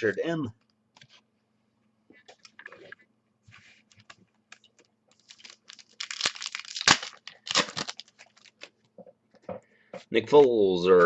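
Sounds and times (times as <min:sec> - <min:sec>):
wrapper tearing and crinkling: 0:05.1 - 0:08.7.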